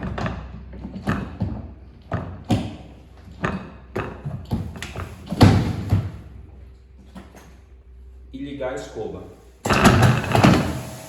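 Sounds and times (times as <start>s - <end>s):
mechanical clunks and knocks: 9.6s - 11.0s.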